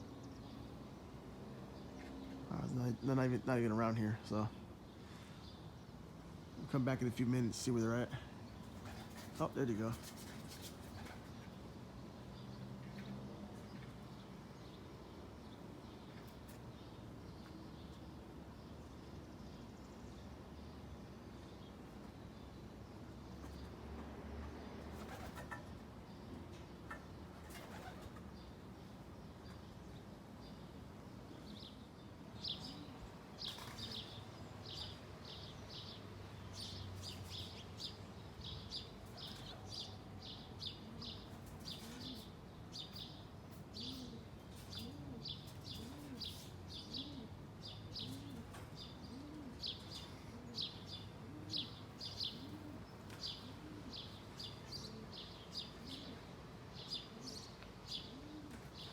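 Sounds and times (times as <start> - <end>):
dove cooing: 43.7 - 58.9.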